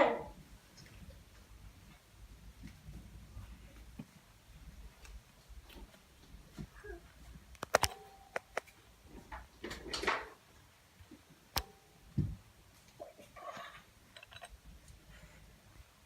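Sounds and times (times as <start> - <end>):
sharp clicks and knocks: 7.5 - 10.4.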